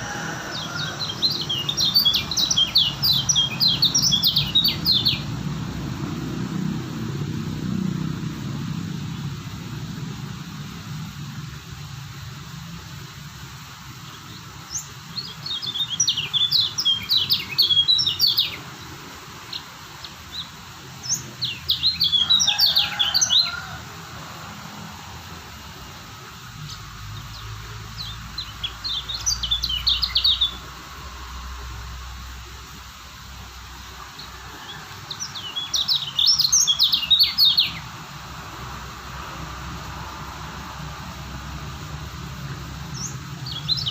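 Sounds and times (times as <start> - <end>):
bird twittering: 0.0 - 5.3, 14.6 - 18.7, 26.7 - 30.6, 35.2 - 37.8.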